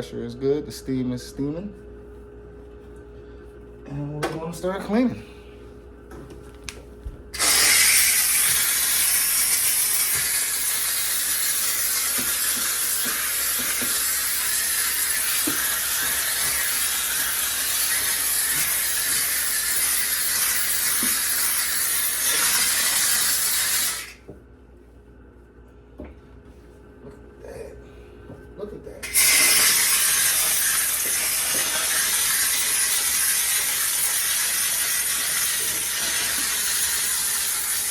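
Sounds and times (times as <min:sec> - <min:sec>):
steam cleaner hissing: 0:07.4 - 0:24.2, 0:29.0 - 0:37.9.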